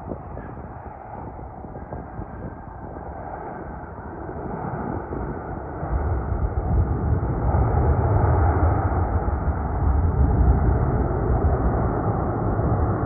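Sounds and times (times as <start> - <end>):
deep rumble: 0.0 - 13.0.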